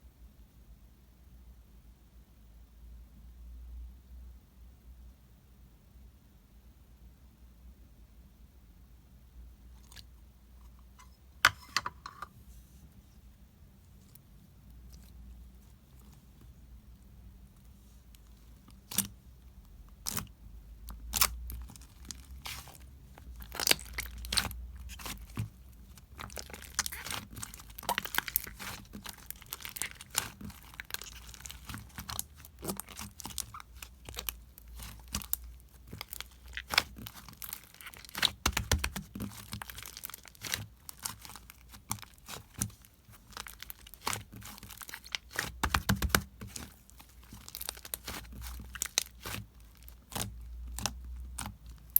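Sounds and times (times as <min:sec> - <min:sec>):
slime clicking and popping: 0:23.4 - 0:51.9.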